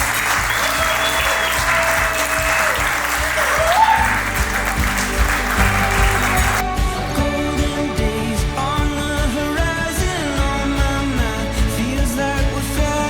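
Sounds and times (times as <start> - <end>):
people applauding: 0.0 - 8.6
background music: 0.0 - 13.0.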